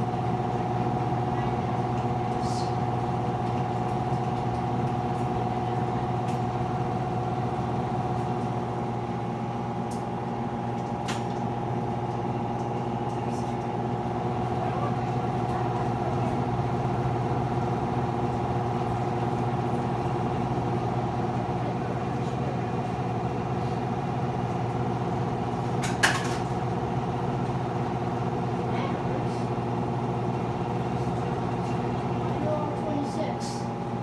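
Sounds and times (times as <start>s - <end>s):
washing machine humming: 0.0s - 34.0s.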